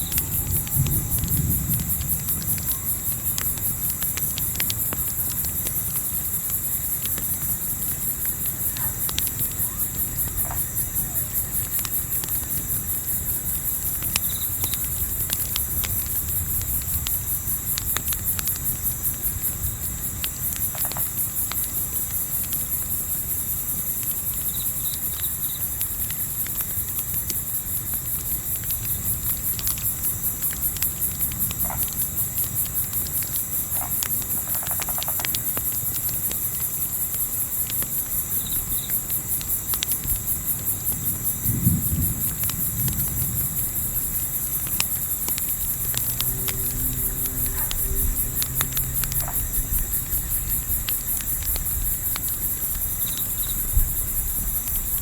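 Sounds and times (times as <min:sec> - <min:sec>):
campfire crackling and popping: 0:00.0 - 0:55.0
crickets chirping: 0:00.0 - 0:55.0
low rumble: 0:42.6 - 0:52.8.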